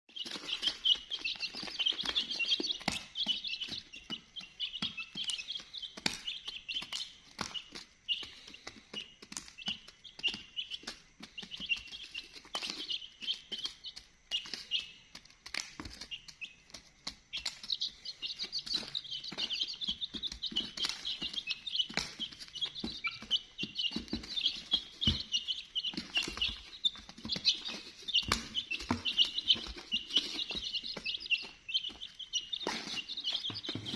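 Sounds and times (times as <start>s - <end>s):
baby chicks peeping: 0.0s - 33.9s
sharp clicks and taps: 0.4s - 33.9s.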